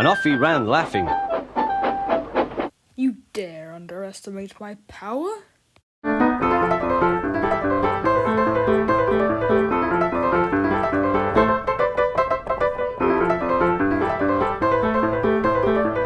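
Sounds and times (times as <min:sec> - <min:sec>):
piano music: 0:00.0 - 0:02.7, 0:06.0 - 0:16.0.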